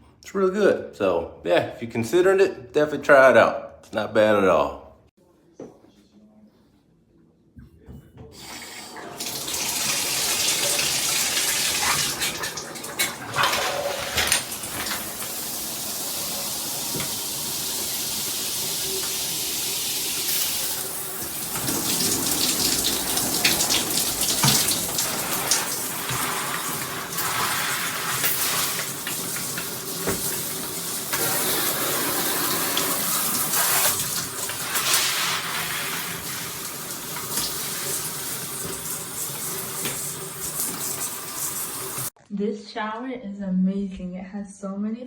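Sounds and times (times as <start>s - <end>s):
shower head spraying water: 8.9s - 42.1s.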